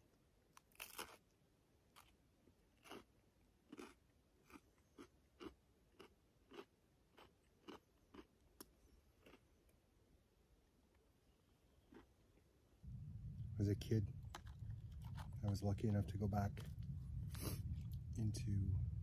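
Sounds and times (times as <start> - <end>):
person chewing crunchy food: 0.5 - 9.8, 11.8 - 12.2, 14.2 - 15.6.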